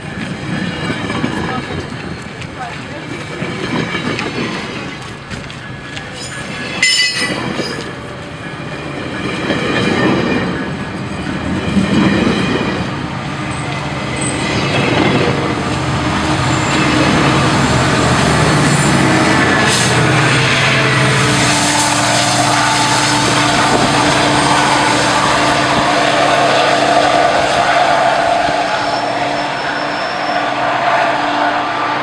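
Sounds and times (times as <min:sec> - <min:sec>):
train wheels clattering over rails: 0:00.0 - 0:31.5
diesel locomotive engine hum: 0:00.0 - 0:32.0
high-pitched wheel squeal: 0:24.3 - 0:32.0.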